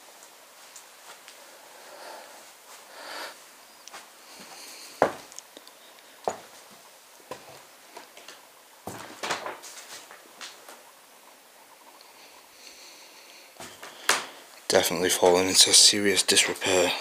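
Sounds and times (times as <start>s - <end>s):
knocks and scuffs: 4.0s - 5.3s, 6.2s - 6.7s, 7.3s - 7.6s, 8.2s - 10.8s.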